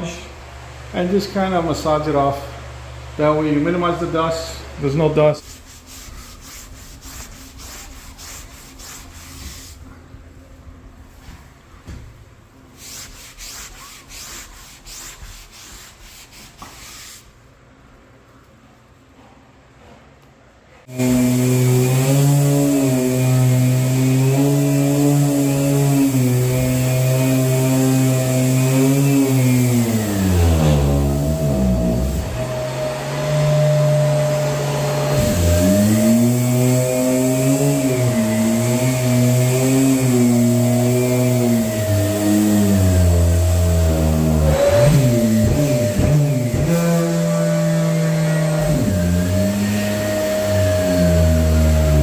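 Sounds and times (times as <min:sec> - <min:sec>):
sanding scraping strokes: 0:05.4 - 0:09.8, 0:12.8 - 0:17.4, 0:20.9 - 0:52.0.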